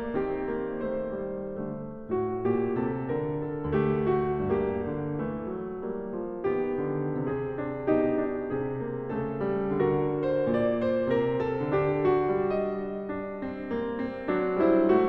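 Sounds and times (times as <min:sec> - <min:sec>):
christmas piano music: 0:00.0 - 0:15.0.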